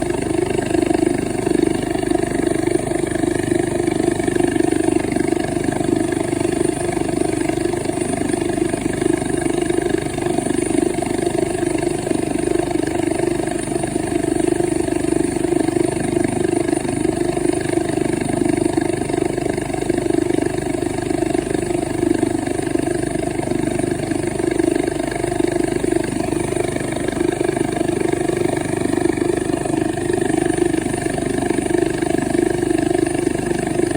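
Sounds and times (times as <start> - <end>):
helicopter mechanical drone: 0.0 - 33.9.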